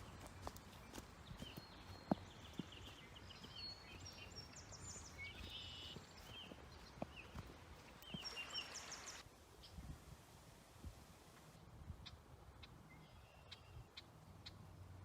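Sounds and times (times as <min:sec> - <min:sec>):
small birds chirping: 0:00.0 - 0:09.9
faint outdoor hiss: 0:00.0 - 0:15.0.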